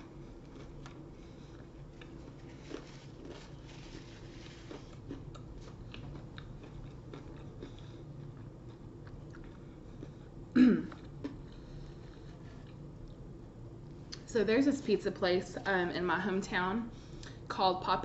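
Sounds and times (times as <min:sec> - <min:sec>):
chewing food with wet clicks: 0:00.4 - 0:03.4, 0:04.7 - 0:10.3
loud voiced throat sound: 0:10.6 - 0:11.0.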